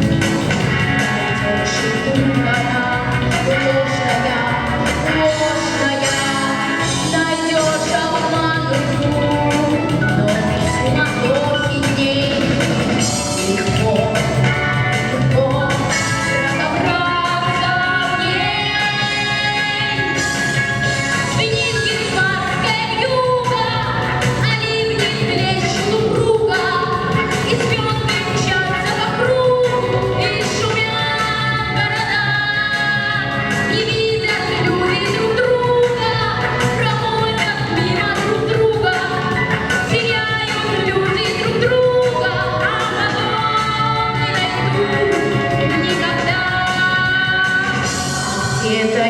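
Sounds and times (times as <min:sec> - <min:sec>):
instrumental backing track: 0:00.0 - 0:49.0
woman singing: 0:00.0 - 0:49.0.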